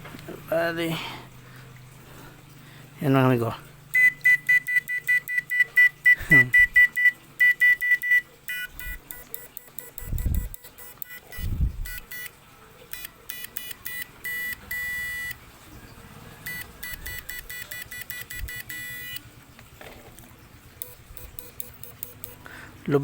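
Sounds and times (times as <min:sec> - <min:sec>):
short high-pitched electronic beeps: 0:03.9 - 0:12.3, 0:12.9 - 0:15.4, 0:16.5 - 0:19.2, 0:20.8 - 0:22.4.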